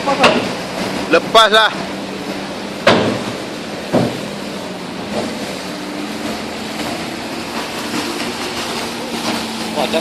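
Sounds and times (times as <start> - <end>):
pile driver machinery hum: 0.0 - 10.0.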